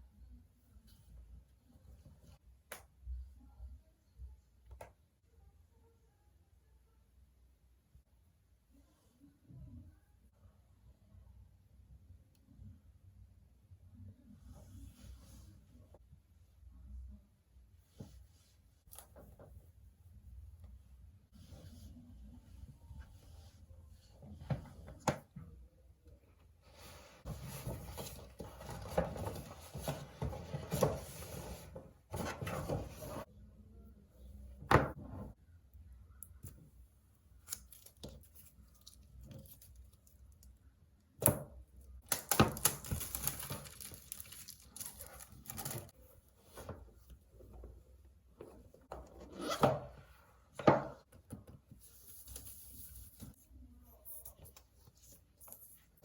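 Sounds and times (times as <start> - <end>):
paper and plastic rustling: 42.1 - 46.0.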